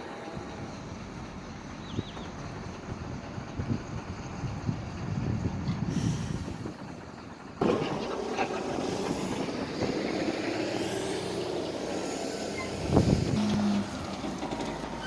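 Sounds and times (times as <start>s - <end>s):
heavy machinery din: 6.8s - 15.0s.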